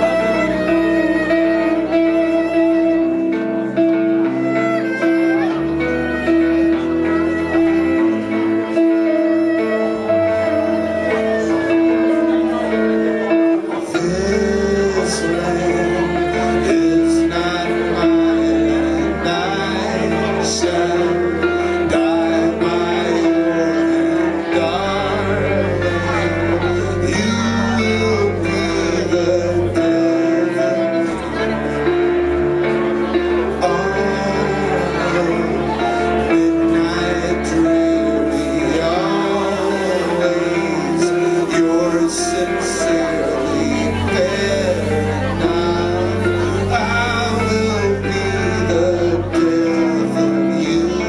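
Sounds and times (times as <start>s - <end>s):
live trio playing instrumental: 0.0s - 51.0s
low bass line: 0.0s - 51.0s.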